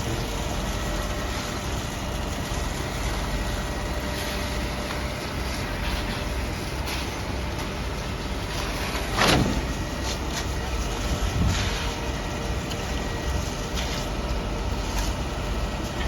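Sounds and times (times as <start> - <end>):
construction machinery rumbling: 0.0 - 16.0.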